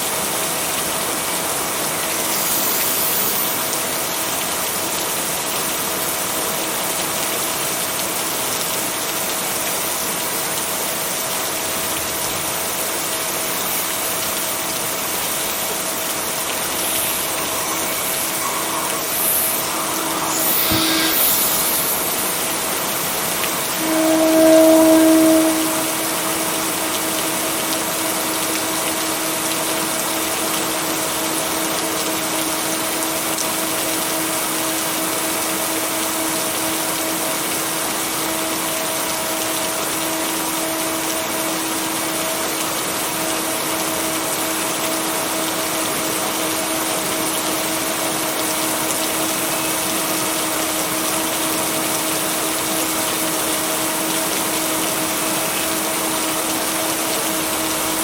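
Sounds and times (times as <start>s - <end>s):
steady rain hiss: 0.0s - 58.0s
white noise: 1.8s - 4.4s, 12.9s - 27.7s
low two-note hum: 23.5s - 27.3s.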